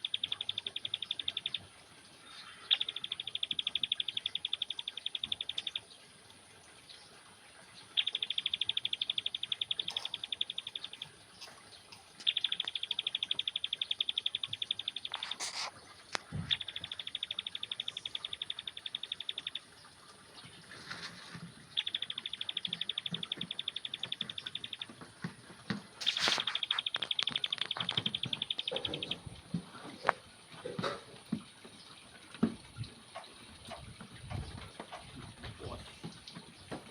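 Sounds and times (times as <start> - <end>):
bird chattering trill: 0.0 - 1.6, 2.4 - 5.9, 7.9 - 11.1, 12.2 - 15.7, 16.4 - 19.7, 21.7 - 24.9, 26.0 - 29.3.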